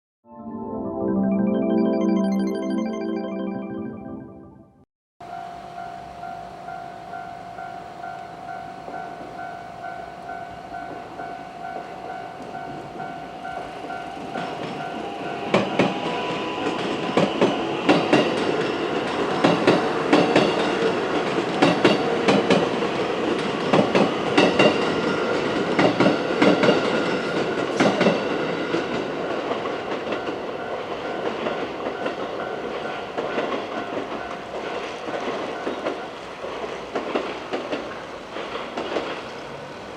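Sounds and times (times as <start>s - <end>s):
level crossing warning bell: 5.2s - 23.0s, 29.3s - 36.2s
train wheels clacking over joints: 11.7s - 39.5s.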